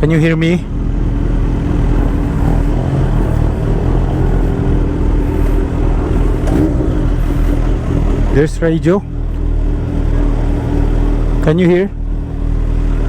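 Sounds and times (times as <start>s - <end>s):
road and wind noise: 0.0s - 13.0s
vehicle engine hum: 0.0s - 13.0s.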